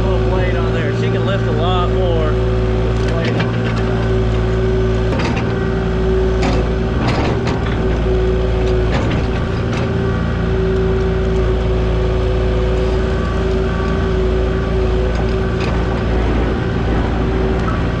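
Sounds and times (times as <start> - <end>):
diesel engine running: 0.0 - 18.0
machine knocks and clanks: 2.9 - 10.2, 13.2 - 18.0.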